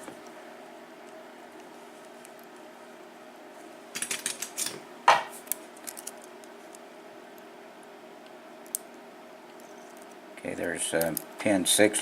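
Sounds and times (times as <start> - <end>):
small metal clicks and rattles: 5.5 - 6.3.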